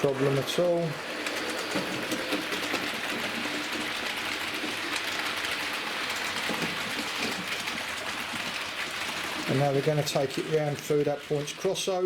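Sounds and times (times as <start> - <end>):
model train motor whirring: 1.2 - 5.6.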